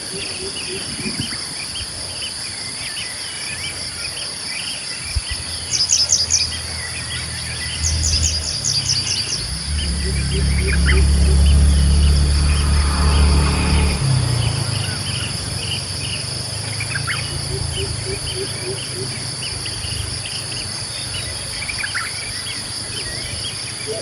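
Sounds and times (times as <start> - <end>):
insect chorus drone: 0.0 - 24.0
bird chirps: 5.1 - 24.0
low rumble: 6.4 - 18.4.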